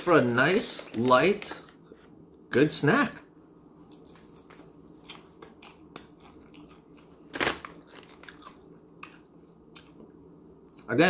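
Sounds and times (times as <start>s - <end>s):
foil snack bag rustling: 0.0s - 1.7s
popcorn being chewed: 3.8s - 10.9s.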